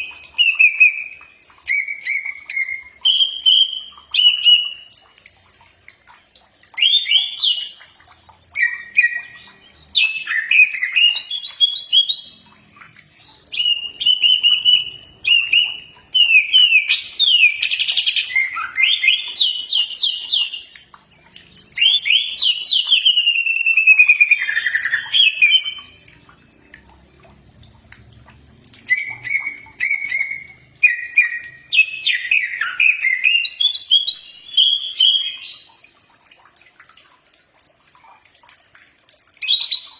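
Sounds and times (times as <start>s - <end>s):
bird singing whistled notes: 13.6s - 20.7s, 21.8s - 26.0s, 28.9s - 35.8s, 39.4s - 39.9s.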